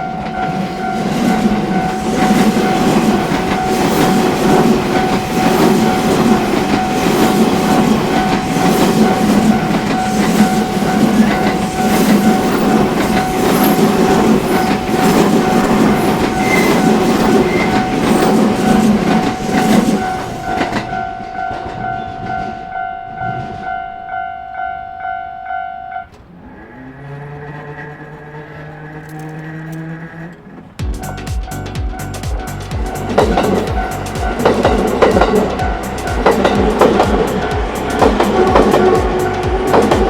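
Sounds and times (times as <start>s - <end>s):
train wheels clattering on rails: 0.0s - 24.1s, 27.4s - 40.0s
crossing warning bell ringing: 0.0s - 26.2s, 30.9s - 40.0s.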